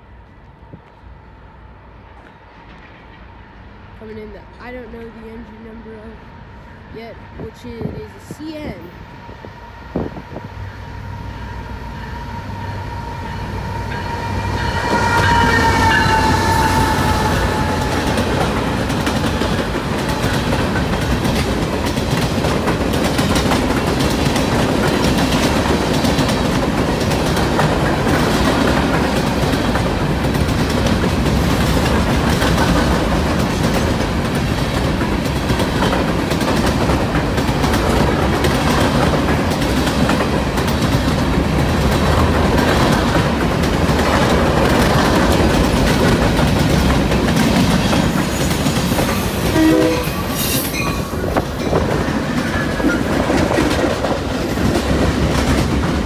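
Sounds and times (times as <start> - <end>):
train horn: 11.1 - 18.9, 49.4 - 51.2
freight cars rumbling and clacking: 17.5 - 49.6, 50.2 - 56.0.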